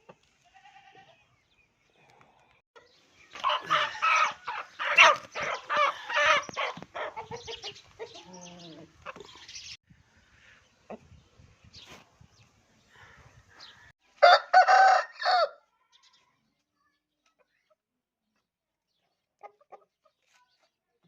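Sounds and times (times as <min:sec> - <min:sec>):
hens clucking: 0:03.3 - 0:09.6
rooster crowing: 0:14.2 - 0:15.6.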